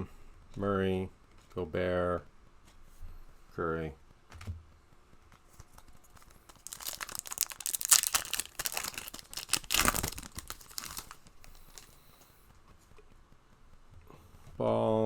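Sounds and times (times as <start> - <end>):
wrapper torn and crinkled: 6.1 - 12.3.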